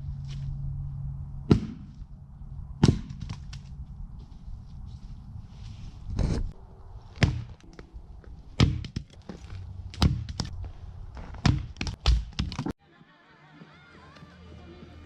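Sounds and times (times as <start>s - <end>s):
firewood chopping thunks: 1.5s - 2.0s, 2.8s - 3.5s, 7.2s - 7.6s, 8.6s - 9.1s, 9.9s - 10.5s, 11.4s - 12.7s.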